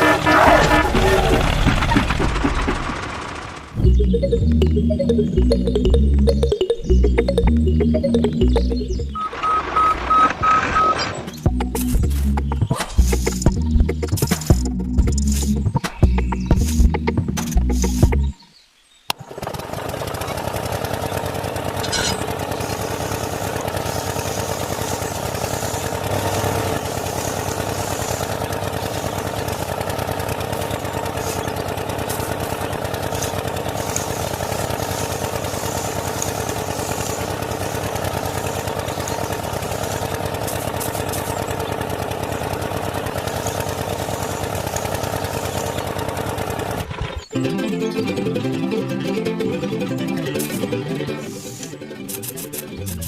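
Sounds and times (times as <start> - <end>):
small motor buzzing: 19.2 - 47.2.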